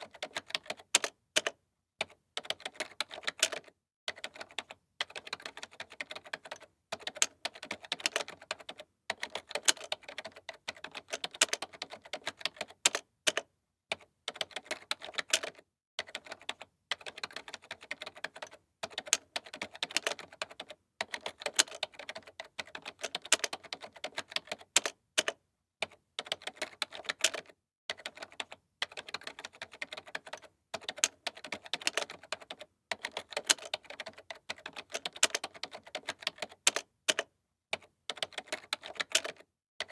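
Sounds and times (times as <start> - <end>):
keyboard typing clicks: 0.0 - 39.9.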